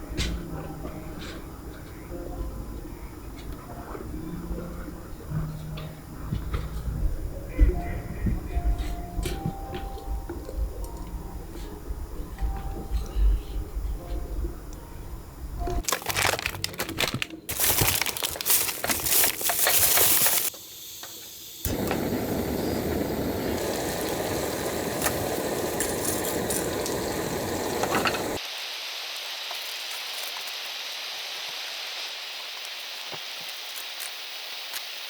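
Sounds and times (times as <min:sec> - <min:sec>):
crackling hissing noise with clicks: 0:17.5 - 0:35.0
steady high hiss: 0:18.5 - 0:35.0.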